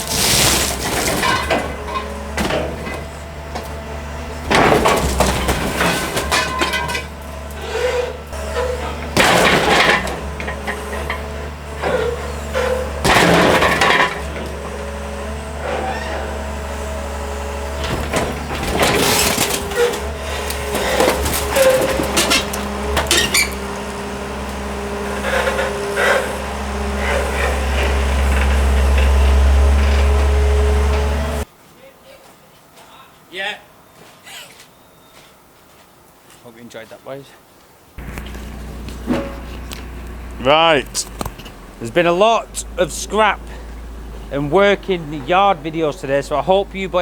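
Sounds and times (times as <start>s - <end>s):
glass breaking: 0.0s - 3.0s, 4.5s - 7.2s, 8.6s - 11.2s, 11.9s - 14.6s, 17.8s - 23.6s
metal crunching: 0.0s - 31.4s, 38.0s - 47.0s
diesel engine droning: 0.0s - 31.5s, 38.0s - 47.0s.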